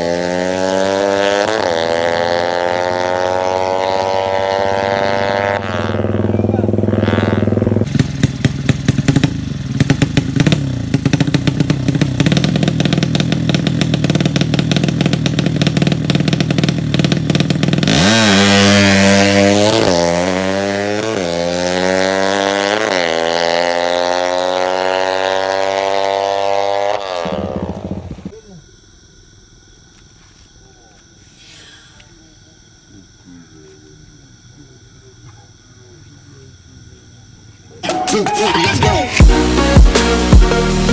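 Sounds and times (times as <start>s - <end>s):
motorcycle engine revving: 0.0s - 28.3s.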